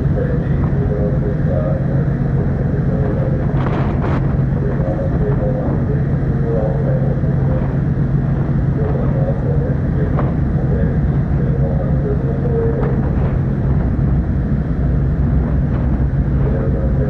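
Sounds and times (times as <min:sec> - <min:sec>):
ferry engines droning: 0:00.0 - 0:17.0.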